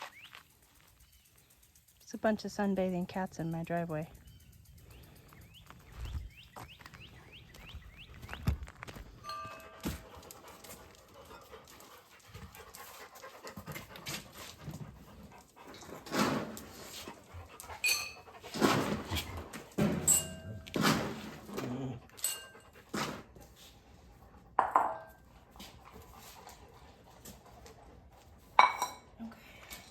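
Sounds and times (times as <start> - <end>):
dog panting: 0.5 - 19.8, 21.5 - 29.1.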